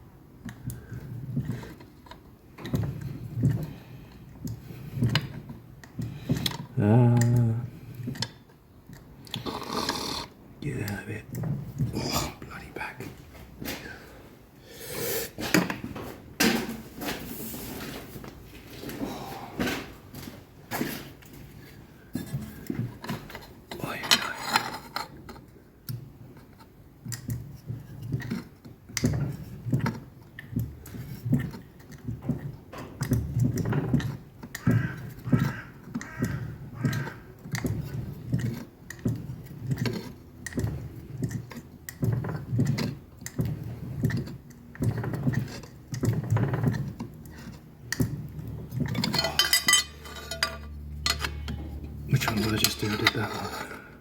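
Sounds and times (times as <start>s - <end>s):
metallic clinks and knocks: 48.8s - 52.0s.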